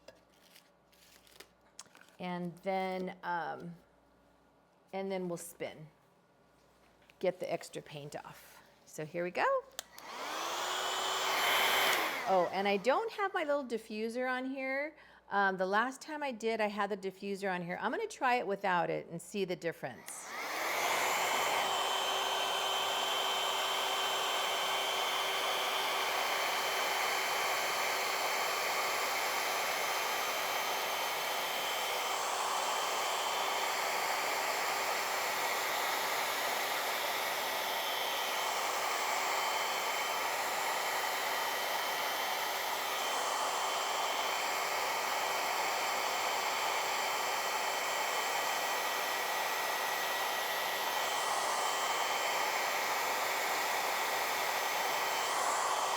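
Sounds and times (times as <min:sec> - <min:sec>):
hair dryer blowing: 0:09.8 - 0:13.5, 0:20.0 - 0:55.9.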